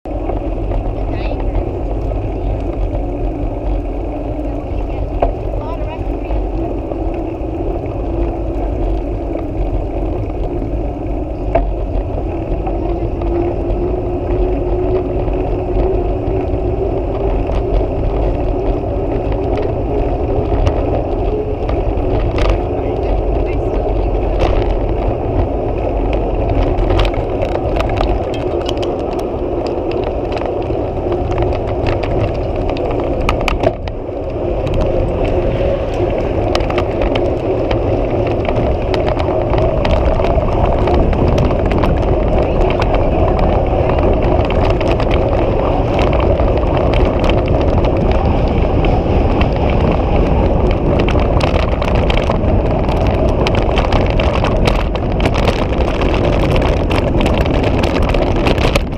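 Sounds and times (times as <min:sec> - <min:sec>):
bicycle riding rumble and rattles: 0:00.0 - 0:58.9.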